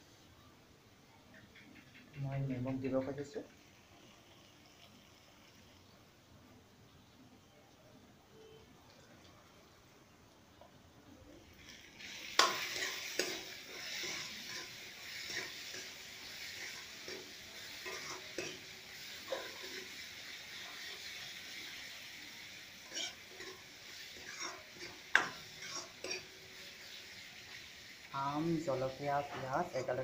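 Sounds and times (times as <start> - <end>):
food sizzling in hot oil: 2.3 - 7.7, 8.9 - 30.0
spatula scraping a pan: 12.0 - 20.0, 22.8 - 26.3.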